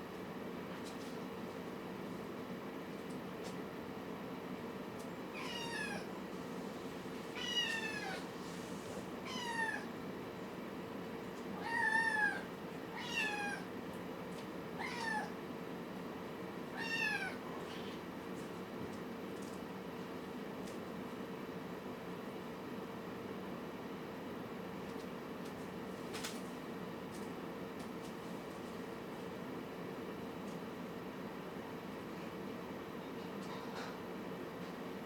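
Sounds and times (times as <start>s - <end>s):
kitten meowing: 16.8s - 17.9s.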